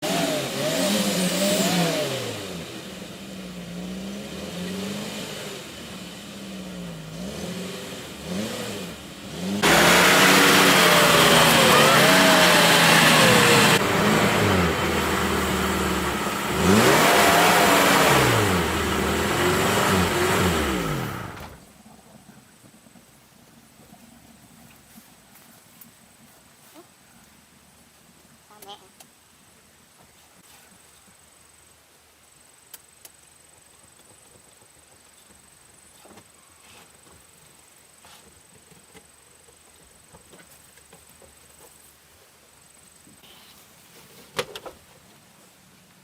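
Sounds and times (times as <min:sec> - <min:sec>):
truck engine revving: 0:00.0 - 0:21.6.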